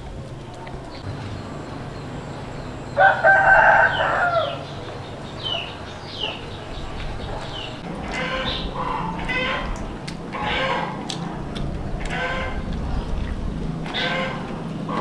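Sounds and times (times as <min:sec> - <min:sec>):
rooster crowing: 0:02.8 - 0:04.8.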